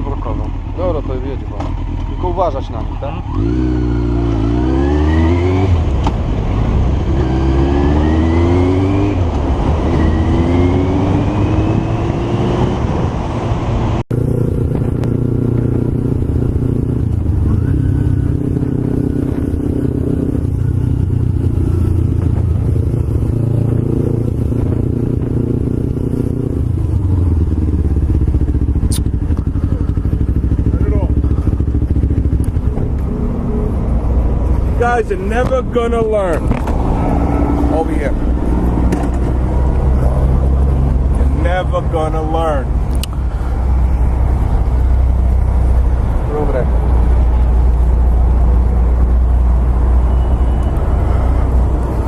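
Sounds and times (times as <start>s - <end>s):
motorcycle accelerating through gears: 0.0s - 35.5s, 36.4s - 41.8s
motorcycle engine running: 14.1s - 49.3s.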